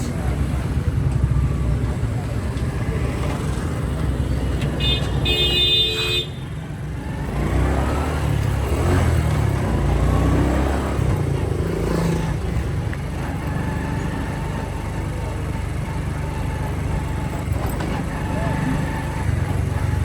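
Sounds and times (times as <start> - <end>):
motorcycle engine rumble: 0.0 - 20.0
vehicle horn: 4.7 - 6.7.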